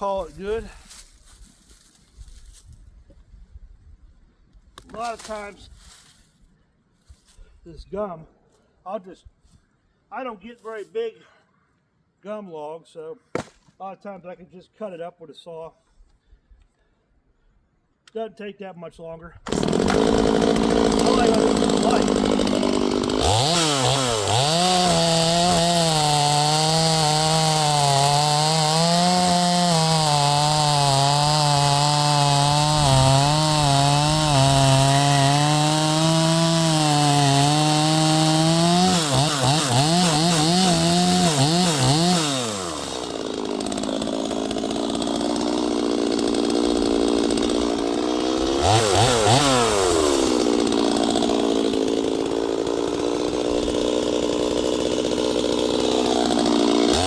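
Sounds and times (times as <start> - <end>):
chainsaw cutting wood: 19.4 - 57.0
chainsaw revving and idling: 19.5 - 57.0.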